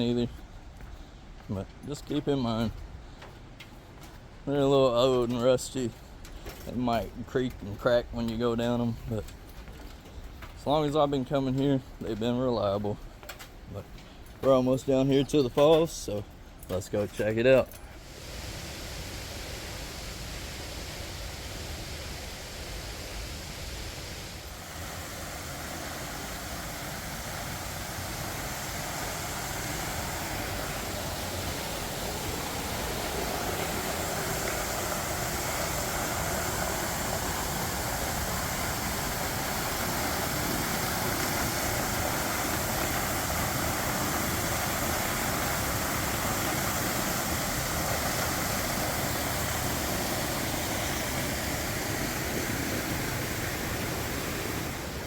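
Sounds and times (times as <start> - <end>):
waterfall rushing: 18.0 - 55.0.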